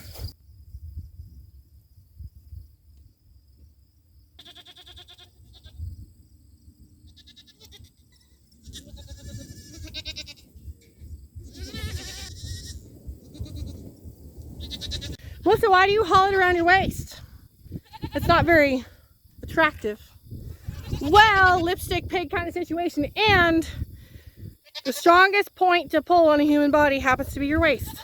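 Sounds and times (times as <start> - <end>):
goats bleating: 4.4 - 5.7, 7.2 - 10.5, 11.4 - 13.8.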